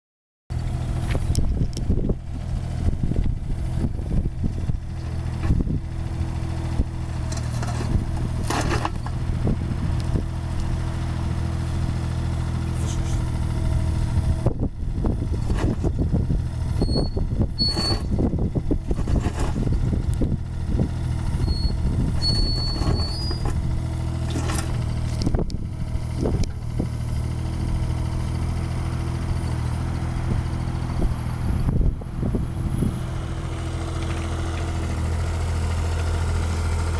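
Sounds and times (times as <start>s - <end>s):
excavator diesel engine running: 0.5s - 36.9s
high squeaks: 16.8s - 18.1s, 21.4s - 23.6s.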